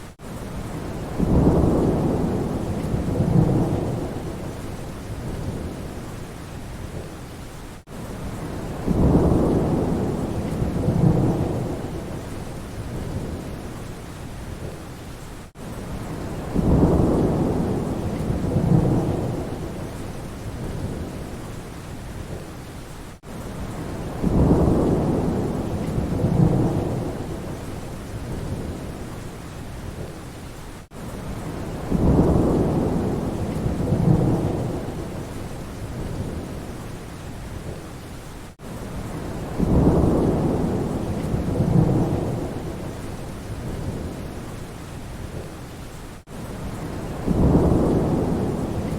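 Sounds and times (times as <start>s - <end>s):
steady rain: 0.0s - 48.9s
rolling thunder: 0.6s - 6.0s, 8.3s - 13.6s, 16.0s - 21.3s, 23.6s - 29.0s, 31.3s - 36.7s, 39.0s - 44.3s, 46.6s - 48.9s.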